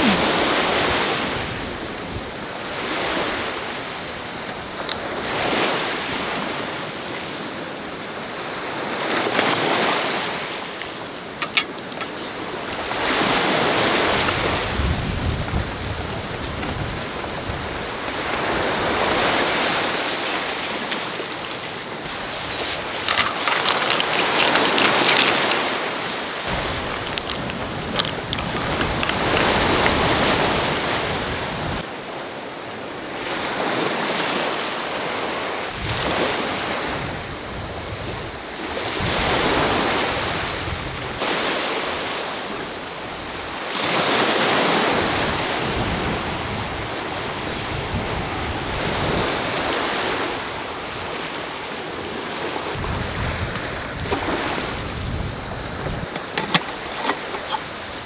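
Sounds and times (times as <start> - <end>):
sea waves breaking on shore: 0.0 - 58.0
wind rumbling on microphone: 10.9 - 31.9, 52.3 - 58.0.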